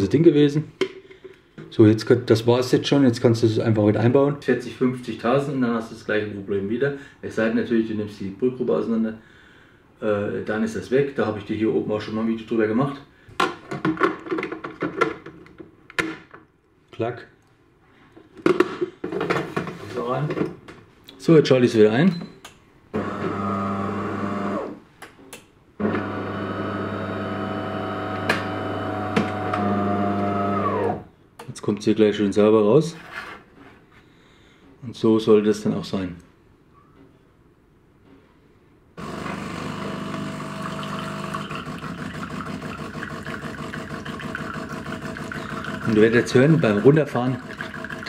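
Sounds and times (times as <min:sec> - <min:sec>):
coffee machine pump humming: 0:25.8 - 0:31.0, 0:39.0 - 0:48.0.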